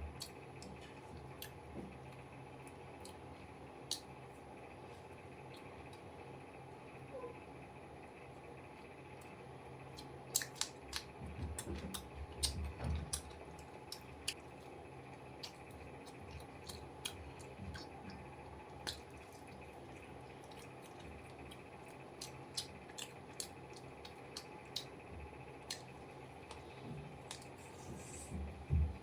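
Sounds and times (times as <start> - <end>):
chewing mouth clicks: 9.9 - 14.5, 15.4 - 18.2, 18.8 - 25.0, 25.6 - 26.6, 27.2 - 28.2.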